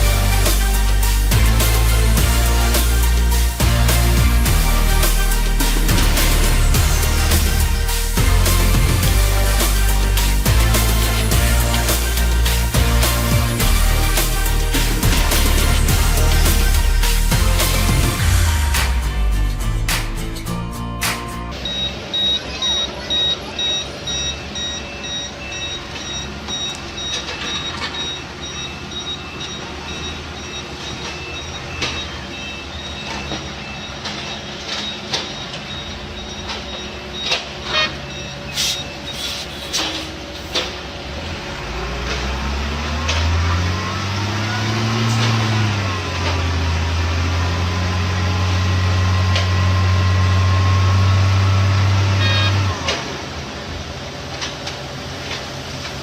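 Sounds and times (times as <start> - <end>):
heavy machine engine revving: 0.0 - 56.0
reversing alarm beeping: 21.5 - 41.8, 42.4 - 53.4.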